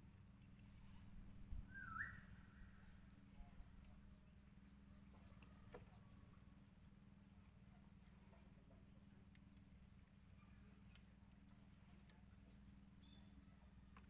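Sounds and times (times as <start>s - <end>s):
faint low hum: 0.0s - 14.0s
rising bird call: 1.6s - 2.9s.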